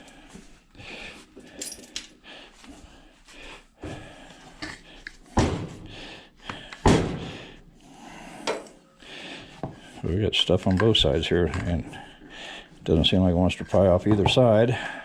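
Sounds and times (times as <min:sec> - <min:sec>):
metal clinking with hand tools: 0:01.4 - 0:02.2.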